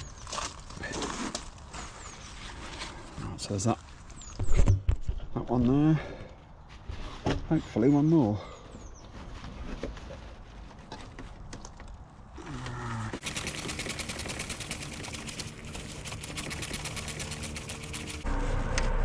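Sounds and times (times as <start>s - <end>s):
cordless power tool rattling: 13.2s - 18.2s.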